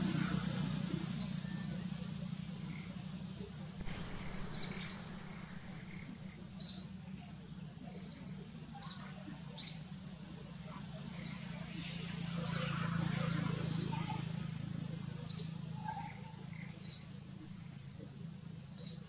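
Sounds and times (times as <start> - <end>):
steady low hum: 2.0 - 8.6
bird chirping: 3.8 - 7.0.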